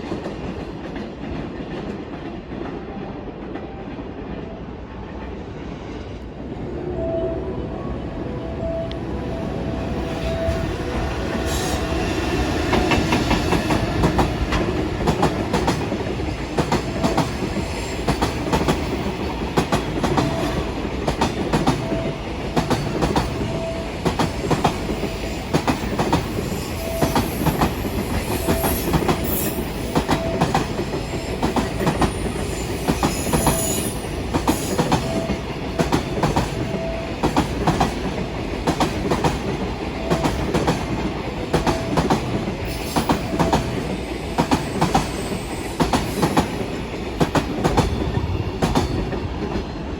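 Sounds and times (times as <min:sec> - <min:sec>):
freight train wheels clattering: 0:10.3 - 0:49.9.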